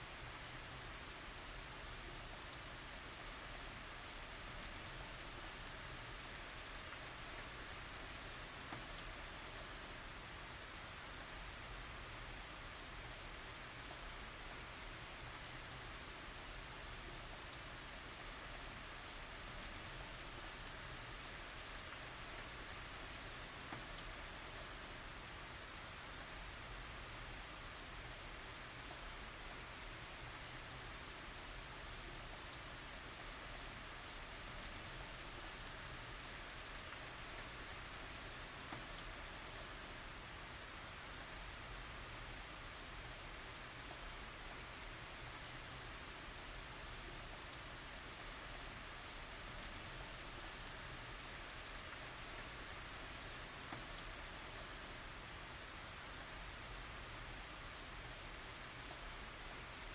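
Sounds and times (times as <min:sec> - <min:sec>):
light rain hissing: 0:00.0 - 0:59.9
rain drops ticking: 0:00.0 - 0:59.9.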